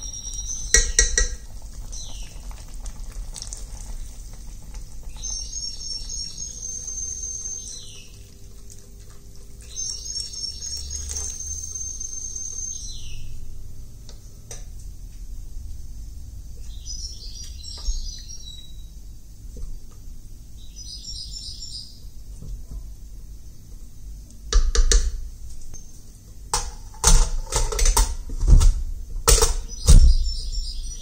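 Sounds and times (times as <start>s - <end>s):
small bird twittering: 5.1s - 8.3s, 9.6s - 13.4s.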